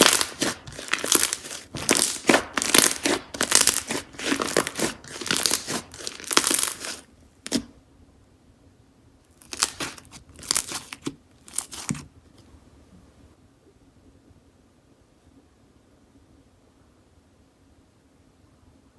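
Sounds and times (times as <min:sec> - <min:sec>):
slime crackling when squeezed: 0:00.0 - 0:07.6, 0:09.4 - 0:12.0.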